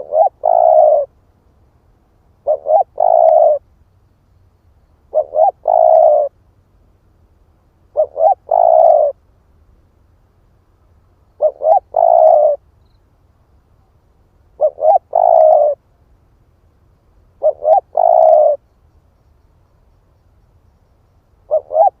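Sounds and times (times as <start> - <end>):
dove cooing: 0.0 - 1.1, 2.4 - 3.6, 5.1 - 6.4, 7.9 - 9.2, 11.4 - 12.6, 14.6 - 15.8, 17.4 - 18.6, 21.4 - 22.0.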